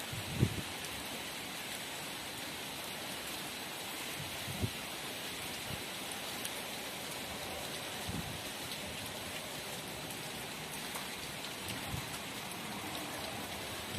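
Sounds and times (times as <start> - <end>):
strong wind blowing: 0.1 - 0.6
wind gusts buffeting microphone: 0.1 - 0.7, 4.2 - 4.8, 8.0 - 9.1, 11.6 - 12.3.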